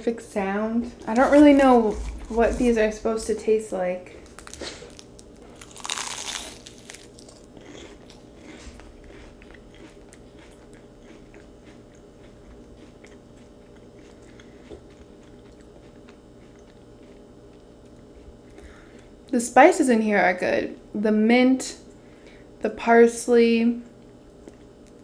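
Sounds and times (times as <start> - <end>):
bite into crisp pastry: 4.2 - 18.6
chewing with crackles: 4.2 - 19.4, 23.8 - 25.0.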